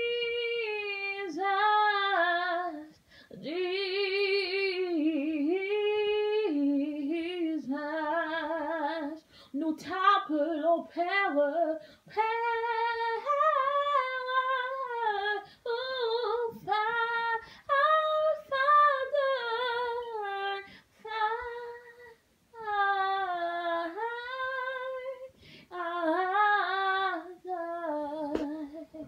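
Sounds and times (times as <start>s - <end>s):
woman singing unaccompanied: 0.0s - 29.0s.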